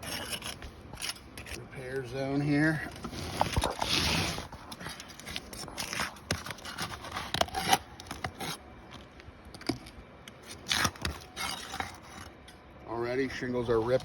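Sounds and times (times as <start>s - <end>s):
roof shingles scraping and tearing: 2.9s - 8.6s, 10.4s - 12.3s.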